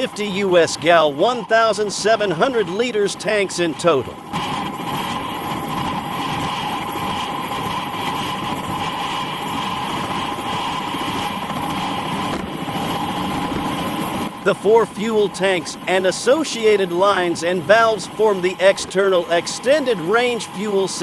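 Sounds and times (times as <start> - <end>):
helicopter low rumble: 0.0 - 21.0
helicopter turbine whine: 0.0 - 21.0.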